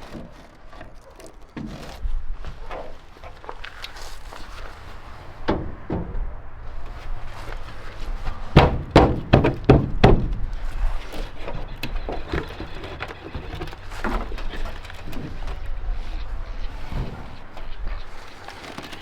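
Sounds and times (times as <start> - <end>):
heavy knocks: 5.0 - 14.4.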